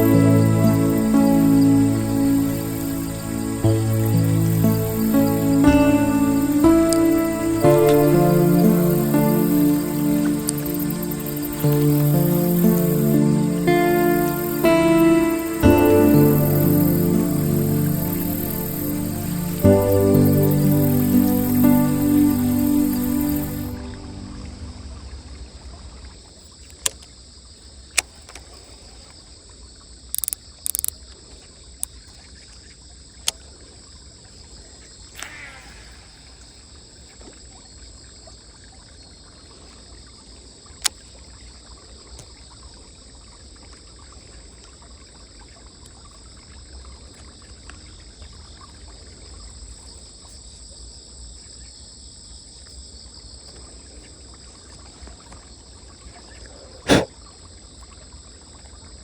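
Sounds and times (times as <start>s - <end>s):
high buzz: 0.0s - 25.4s
sharp clicks: 30.2s - 30.9s
short hisses: 56.9s - 57.1s.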